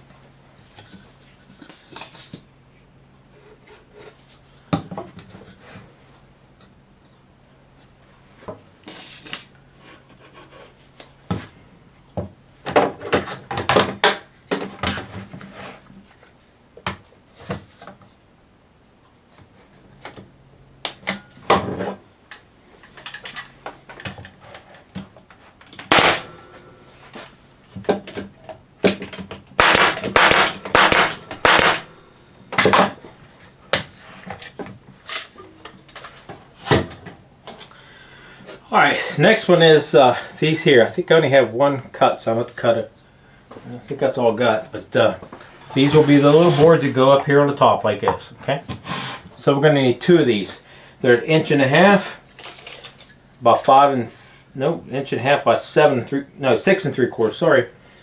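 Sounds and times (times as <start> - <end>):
boards and tools knocking: 27.9 - 31.9.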